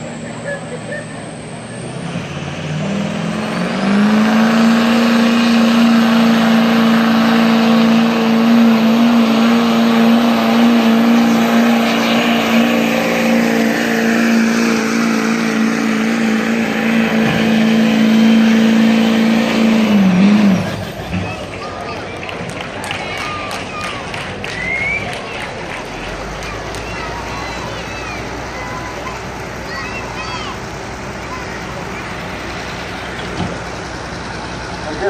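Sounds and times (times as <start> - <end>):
diesel truck engine at high revs: 0.0 - 35.0
high whistle: 24.5 - 25.1.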